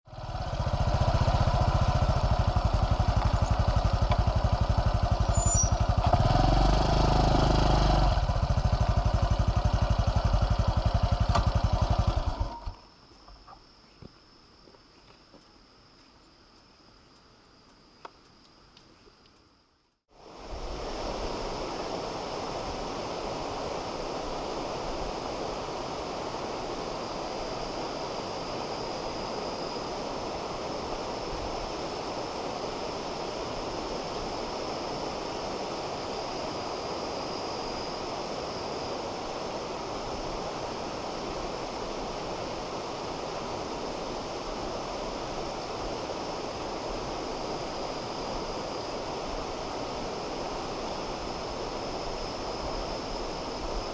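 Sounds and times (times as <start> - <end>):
faint high-pitched tone: 5.3 - 5.8.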